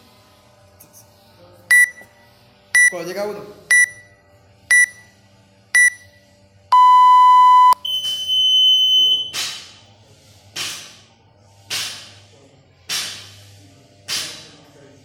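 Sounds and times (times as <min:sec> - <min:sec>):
countdown timer beeping: 0:01.7 - 0:02.0, 0:02.8 - 0:03.0, 0:03.7 - 0:04.0, 0:04.7 - 0:05.0, 0:05.8 - 0:06.0, 0:06.8 - 0:09.4
held high-pitched tone: 0:06.7 - 0:09.4.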